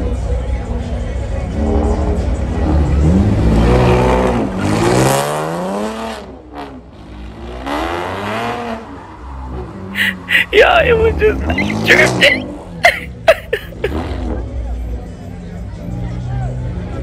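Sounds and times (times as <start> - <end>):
car engine revving hard: 7.4 - 8.9.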